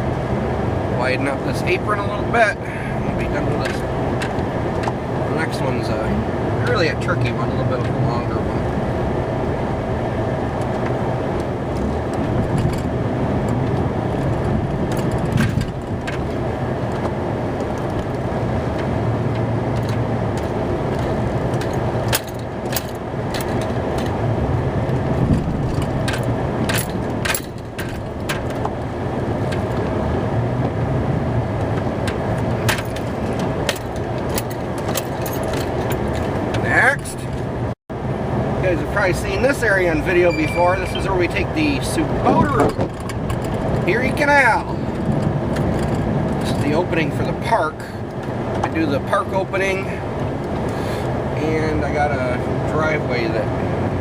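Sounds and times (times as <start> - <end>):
truck engine running: 0.0 - 54.0
sharp clicks and rattles: 3.2 - 5.0, 10.5 - 37.8, 39.0 - 50.8.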